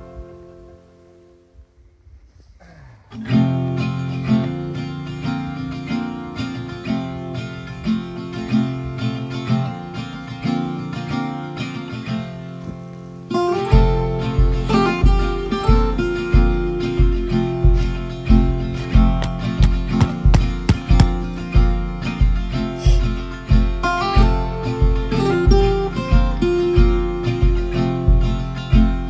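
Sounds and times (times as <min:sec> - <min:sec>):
acoustic guitar music: 0:00.0 - 0:01.8, 0:03.1 - 0:29.0
heavy beat with deep bass: 0:13.7 - 0:29.0.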